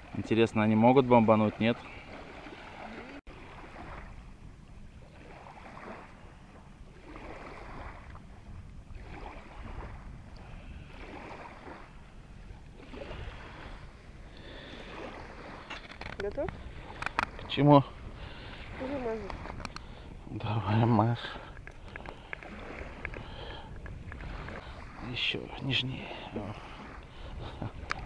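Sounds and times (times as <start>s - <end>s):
water sloshing and lapping: 0.0s - 28.0s.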